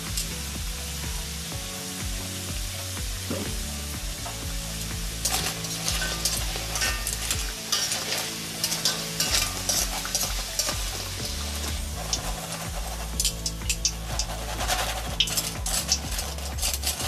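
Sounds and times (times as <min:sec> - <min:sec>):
food sizzling in hot oil: 0:00.0 - 0:17.0
metal tongs scraping a wok: 0:04.2 - 0:17.0.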